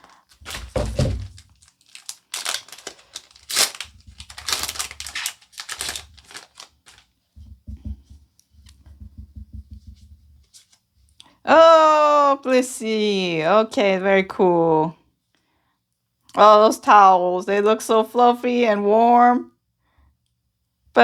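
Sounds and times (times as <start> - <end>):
foil wrapper tearing and crinkling: 0.0 - 7.1
dull handling sounds: 0.0 - 8.1.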